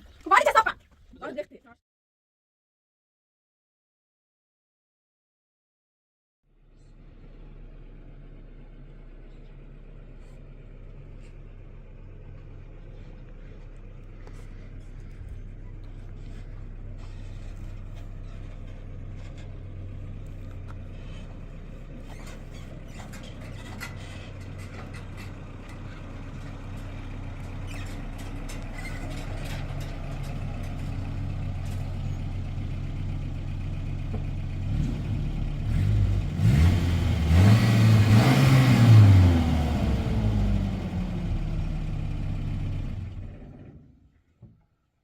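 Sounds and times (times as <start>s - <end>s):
vehicle engine revving: 10.1s - 32.2s, 33.4s - 43.8s.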